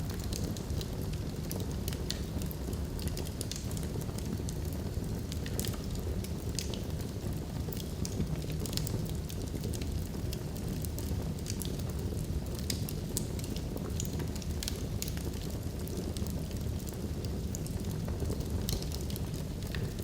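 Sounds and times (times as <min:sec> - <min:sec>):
low rumble of flames: 0:00.0 - 0:20.0
logs crackling and popping: 0:05.2 - 0:20.0.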